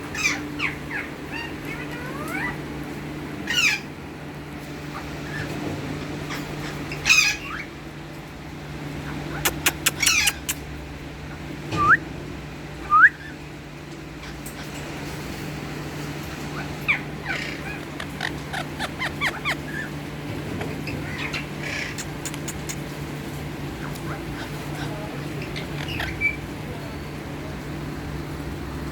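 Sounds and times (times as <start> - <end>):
parakeet chirping: 9.2 - 10.6, 16.5 - 20.0, 23.8 - 26.4.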